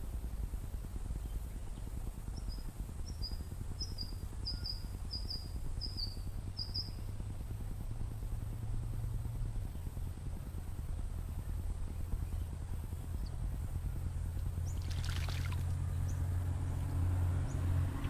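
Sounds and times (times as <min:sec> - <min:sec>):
steady low rumble: 0:00.0 - 0:18.0
small bird chirping: 0:01.2 - 0:07.3, 0:14.3 - 0:18.0.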